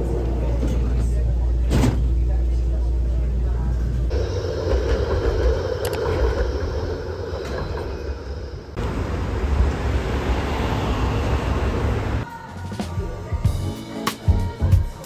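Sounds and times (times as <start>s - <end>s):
vehicle rumbling: 0.0s - 12.3s.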